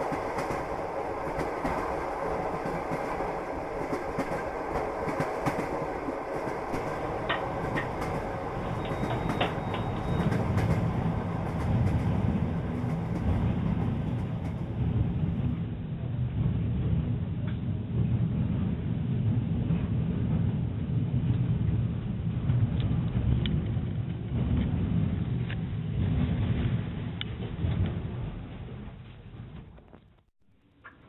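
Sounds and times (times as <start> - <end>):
train wheels clicking over rail joints: 0.0 - 14.8
railway carriages running noise: 0.0 - 29.9
deep rumble: 0.0 - 30.2.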